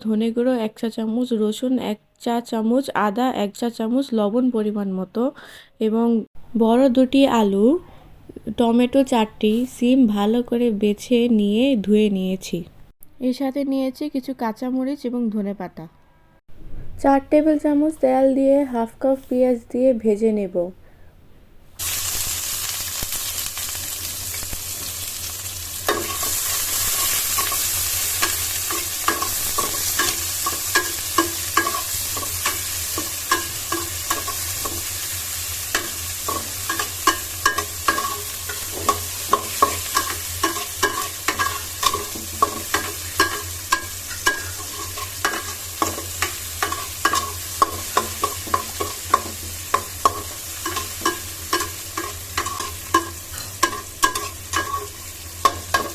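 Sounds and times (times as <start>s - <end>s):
onion sizzling in oil: 21.8s - 55.9s
metal utensil scraping pan: 25.8s - 35.0s, 35.6s - 55.9s.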